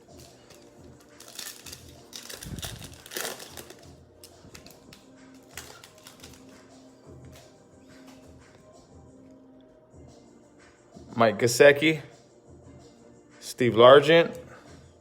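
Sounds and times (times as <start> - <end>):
trading cards clicking and rustling: 0.1 - 6.6.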